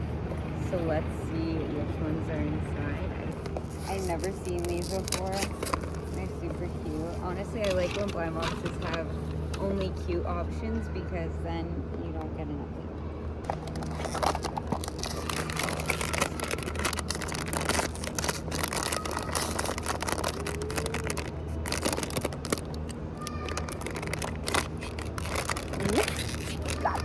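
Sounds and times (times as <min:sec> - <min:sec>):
plastic packaging crinkling: 0:03.4 - 0:09.9, 0:13.5 - 0:27.0.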